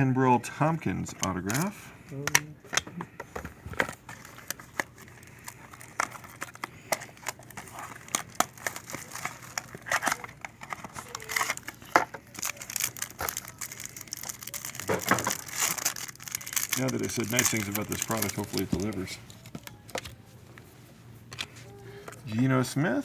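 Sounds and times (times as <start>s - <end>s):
cards being handled: 1.0s - 22.4s
plastic wrapping crinkling and tearing: 3.6s - 20.3s.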